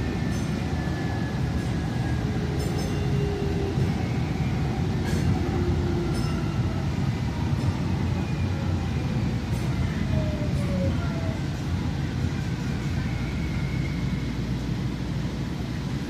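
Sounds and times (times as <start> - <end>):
train rumbling along track: 0.0 - 16.0.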